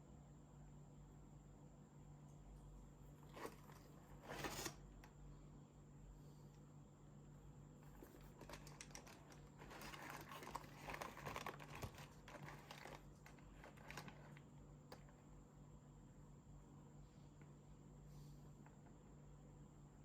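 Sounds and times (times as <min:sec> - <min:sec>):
wrappers crinkling and rustling: 0:03.2 - 0:04.8, 0:07.8 - 0:15.1.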